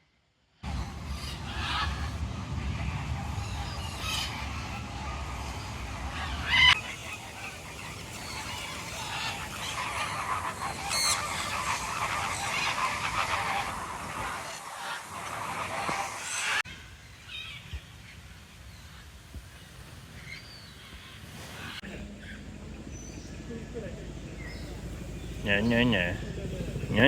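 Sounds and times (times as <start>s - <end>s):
low rumble: 0.6s - 14.5s
chorus of birds calling: 0.6s - 18.1s, 19.6s - 27.0s
loud bird calls: 0.6s - 18.1s, 19.7s - 27.0s.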